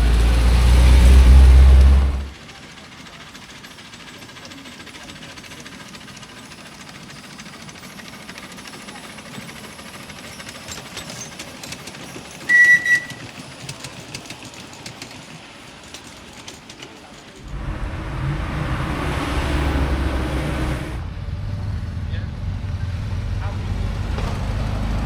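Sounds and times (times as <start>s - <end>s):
vehicle engine running low: 0.0s - 2.8s, 17.4s - 25.0s
short high-pitched toots: 12.5s - 13.2s
hissing rush: 17.4s - 22.0s.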